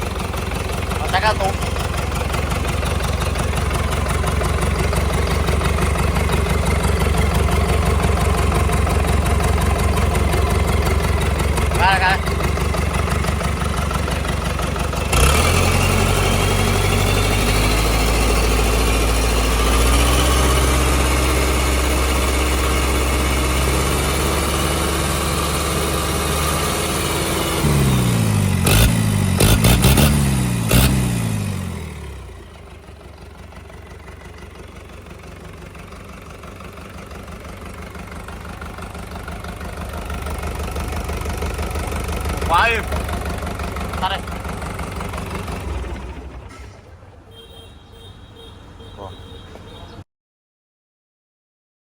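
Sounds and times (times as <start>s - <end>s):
diesel engine revving: 0.0s - 50.0s.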